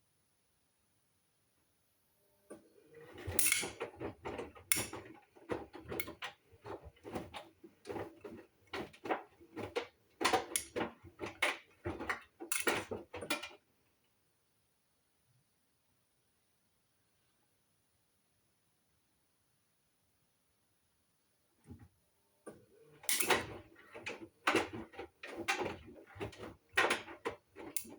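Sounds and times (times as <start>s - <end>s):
washing machine drum clattering: 3.0s - 13.6s, 23.0s - 27.9s.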